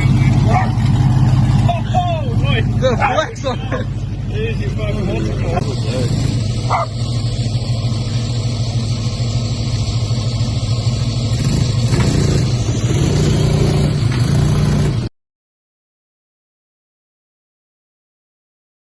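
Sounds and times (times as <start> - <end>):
truck engine running and revving: 0.0 - 15.1.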